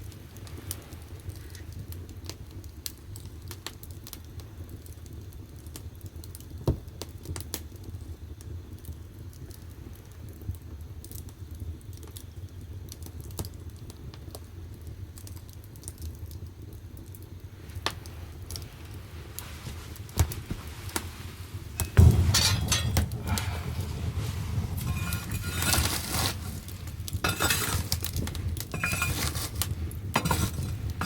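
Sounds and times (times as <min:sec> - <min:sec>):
firewood crackling: 0:00.0 - 0:31.0
low rumble of fire: 0:00.0 - 0:31.0
loud fire pop: 0:21.8 - 0:31.0.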